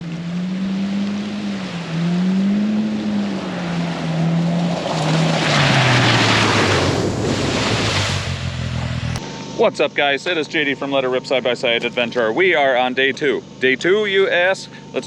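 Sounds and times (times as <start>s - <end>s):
engine revving: 0.0s - 15.0s
loud rushing noise: 1.6s - 9.3s.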